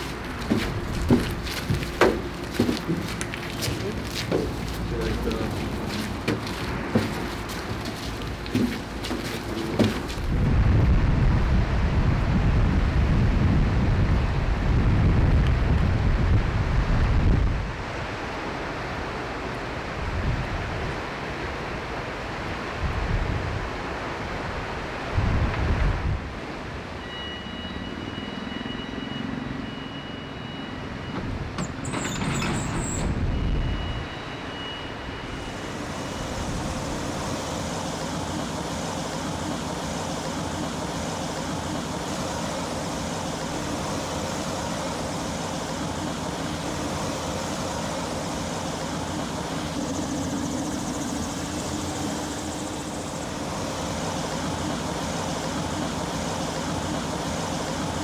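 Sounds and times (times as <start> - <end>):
vehicle engine running: 0.0 - 14.7, 35.4 - 58.0.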